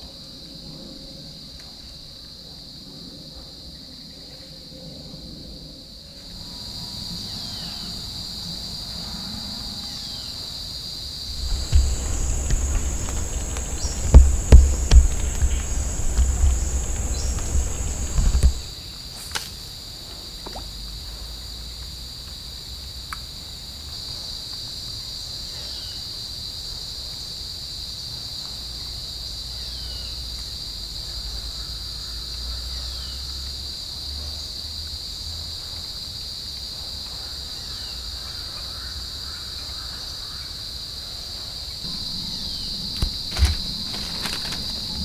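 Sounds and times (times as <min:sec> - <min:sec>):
insects droning: 0:00.0 - 0:21.8, 0:37.7 - 0:45.0.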